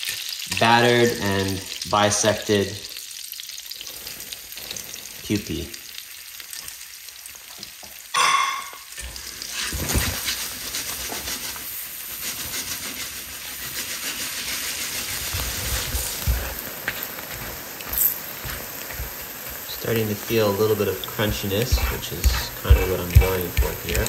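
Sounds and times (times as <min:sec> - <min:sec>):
frying sizzle: 0:00.0 - 0:24.0
pan knocking: 0:08.2 - 0:08.9, 0:21.0 - 0:24.0.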